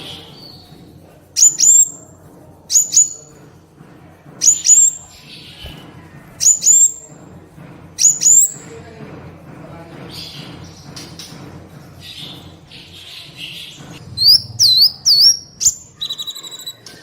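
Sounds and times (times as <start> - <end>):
bird calling sharp double notes: 14.1 - 16.8.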